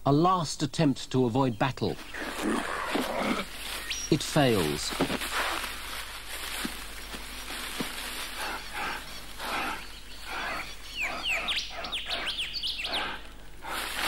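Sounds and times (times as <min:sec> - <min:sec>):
birds chirping: 0:00.0 - 0:14.0
soft breathy bursts: 0:08.1 - 0:14.0.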